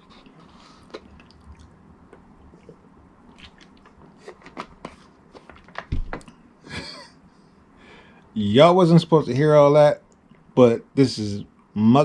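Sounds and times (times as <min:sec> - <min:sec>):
lip and tongue smacks: 0:00.7 - 0:04.7.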